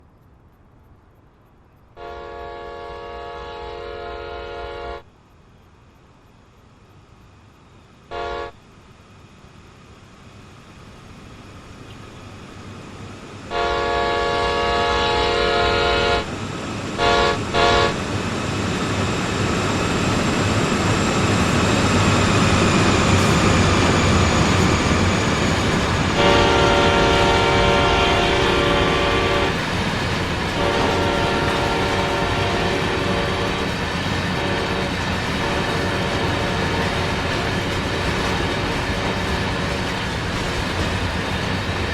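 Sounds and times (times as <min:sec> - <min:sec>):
train rumble: 0:00.0 - 0:41.9
locomotive horn blasts: 0:02.0 - 0:05.1, 0:08.1 - 0:08.6, 0:13.5 - 0:16.3, 0:17.0 - 0:18.1, 0:26.1 - 0:29.6, 0:30.5 - 0:33.7, 0:34.3 - 0:37.5.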